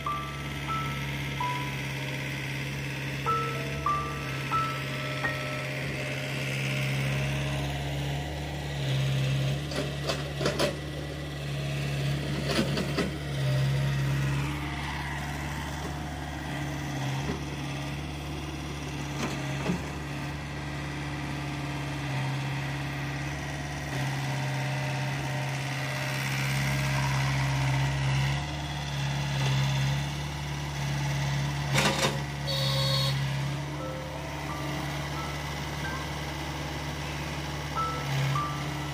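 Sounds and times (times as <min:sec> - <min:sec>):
diesel engine of earthmoving machine: 0:00.0 - 0:38.9.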